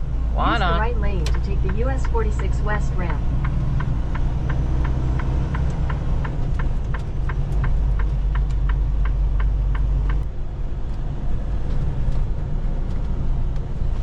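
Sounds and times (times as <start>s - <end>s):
truck engine drone: 0.0s - 14.0s
turn signal ticking: 0.1s - 10.3s.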